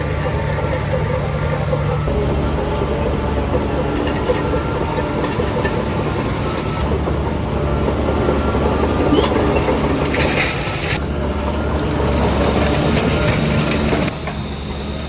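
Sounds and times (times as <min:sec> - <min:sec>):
diesel machinery running: 0:00.0 - 0:15.0
metallic clattering: 0:03.8 - 0:14.2.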